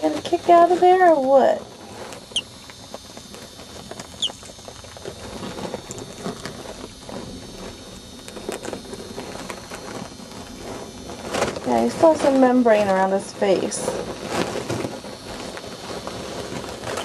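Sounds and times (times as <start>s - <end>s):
faint scratching and rustling: 0.0s - 17.0s
chick peeping: 2.2s - 2.6s, 4.2s - 4.6s.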